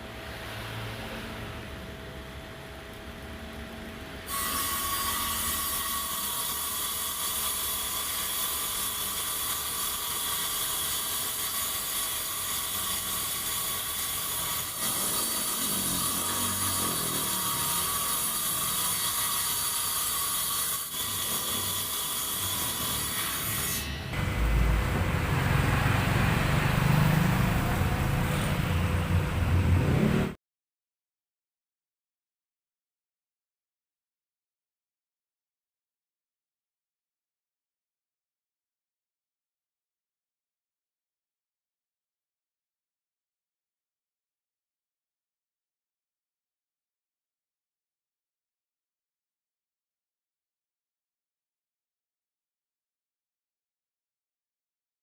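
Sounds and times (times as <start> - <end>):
table saw whining: 4.2 - 28.5.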